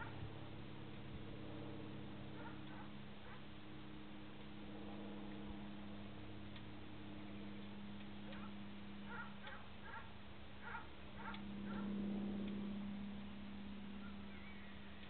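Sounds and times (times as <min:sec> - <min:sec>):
steady low hum: 0:00.0 - 0:15.0
faint ticks: 0:12.4 - 0:12.7
small bird chirping: 0:14.0 - 0:15.0.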